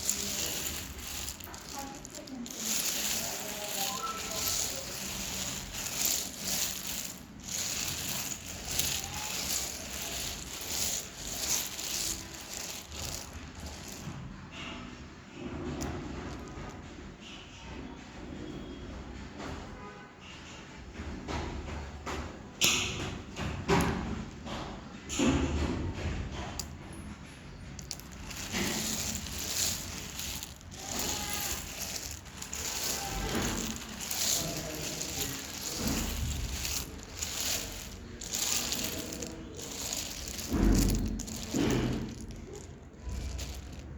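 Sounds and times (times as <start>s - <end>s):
dry clay crunching: 0.0s - 14.0s, 27.8s - 43.9s.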